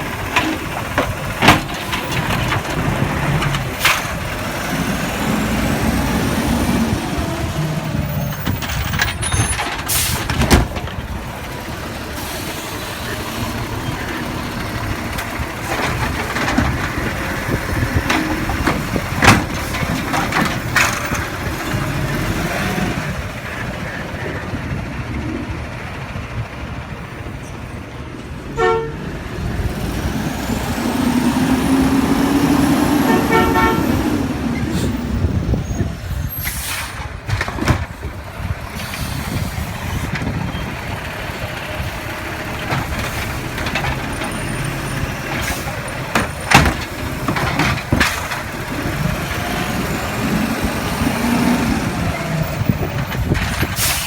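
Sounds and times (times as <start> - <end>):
truck diesel engine revving: 0.0 - 54.0
short horn toots: 33.1 - 34.0.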